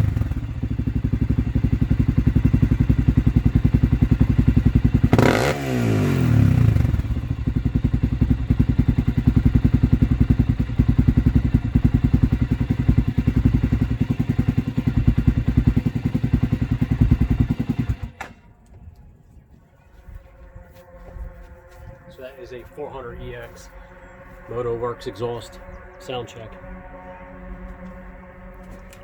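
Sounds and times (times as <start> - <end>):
quad bike engine idling: 0.0 - 18.4.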